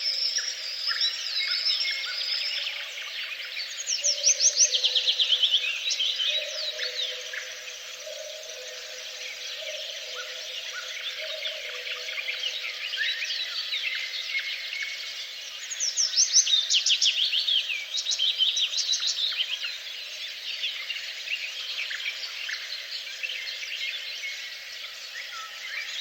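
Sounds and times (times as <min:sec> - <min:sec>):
songbirds chirping and trilling: 0:00.0 - 0:26.0.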